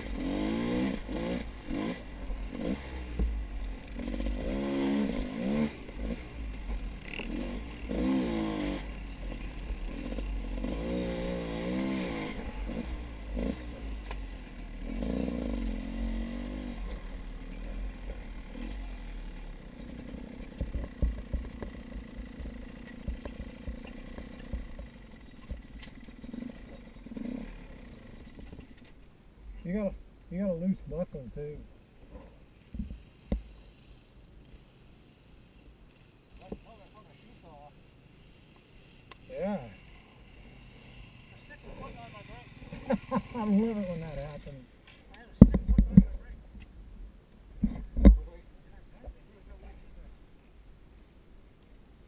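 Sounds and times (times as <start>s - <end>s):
clatter: 19.7s - 29.0s.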